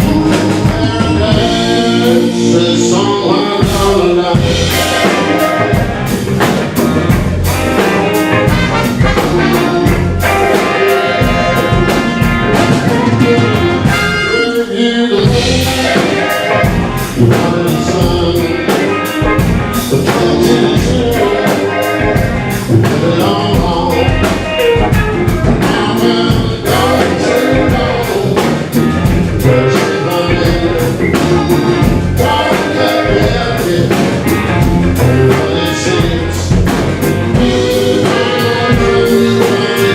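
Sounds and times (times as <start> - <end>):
live blues band playing: 0.0 - 39.9
trumpet: 4.5 - 6.2, 7.5 - 17.0, 37.4 - 39.9
tenor saxophone: 7.5 - 17.0, 37.2 - 39.9.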